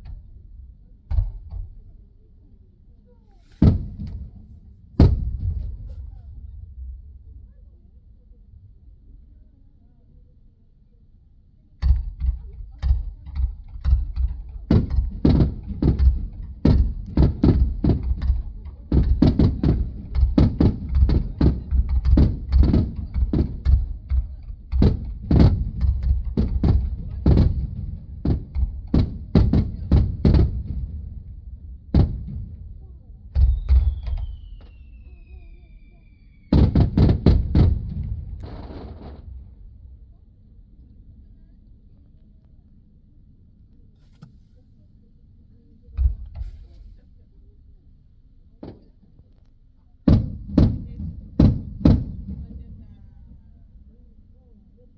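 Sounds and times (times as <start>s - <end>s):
fireworks bangs heard from car: 0.0s - 1.9s, 3.4s - 6.3s, 11.8s - 40.1s, 50.1s - 52.9s
falling firework whistle: 33.4s - 36.7s.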